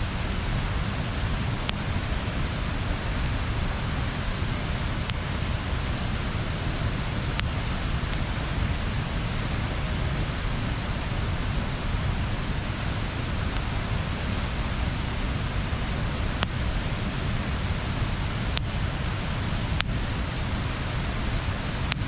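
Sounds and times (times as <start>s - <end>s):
crackling wood pops: 0.0s - 8.4s, 16.3s - 16.6s
bonfire rushing hiss and rumble: 0.0s - 22.0s.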